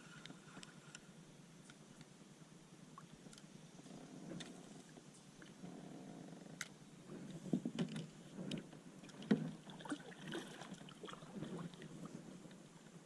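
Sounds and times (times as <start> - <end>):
knocks and clatter in a kayak: 4.1 - 13.0.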